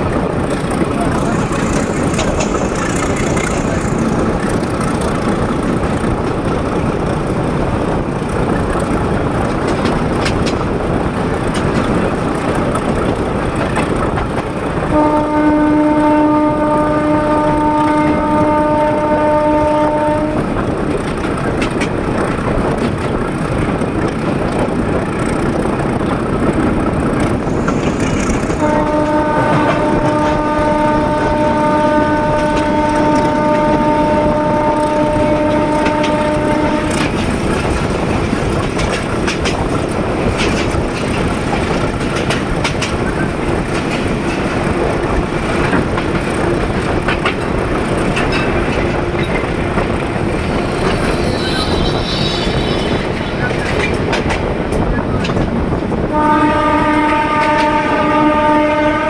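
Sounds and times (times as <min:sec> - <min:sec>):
wheels clicking over rail joints: 0:00.0 - 0:15.1, 0:20.8 - 0:56.0
train rumbling on rails: 0:00.0 - 0:59.0
locomotive horn blast: 0:14.9 - 0:20.5, 0:28.5 - 0:37.2, 0:48.8 - 0:53.8, 0:56.1 - 0:59.0.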